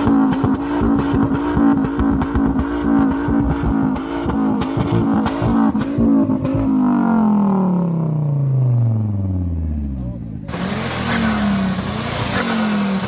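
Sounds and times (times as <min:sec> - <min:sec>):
car exhaust revving: 0:00.0 - 0:13.0.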